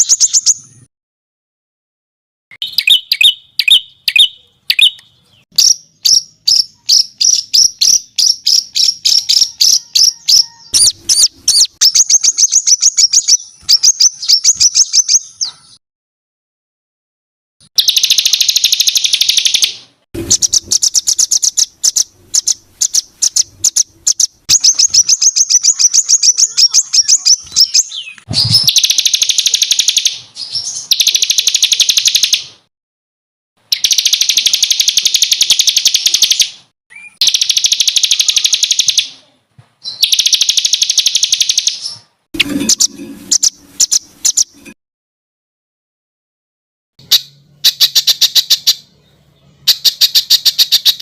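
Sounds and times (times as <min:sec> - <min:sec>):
bird harsh buzzy rasp: 0:20.2 - 0:25.7, 0:42.4 - 0:44.8.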